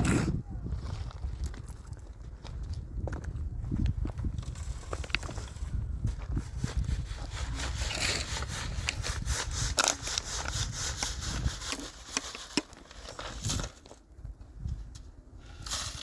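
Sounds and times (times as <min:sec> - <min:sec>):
rough scraping and rustling: 0:03.8 - 0:16.0.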